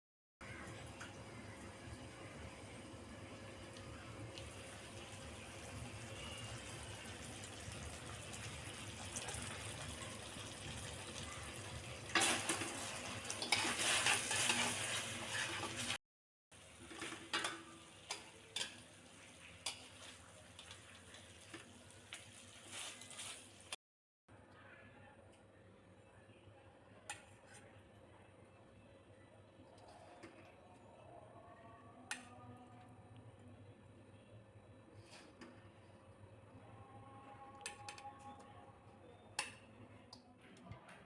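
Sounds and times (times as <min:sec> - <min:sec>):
chicken sizzling in a pan: 0:00.4 - 0:16.0, 0:16.6 - 0:23.8
utensil stirring and scraping pan: 0:12.1 - 0:16.0, 0:19.6 - 0:23.6.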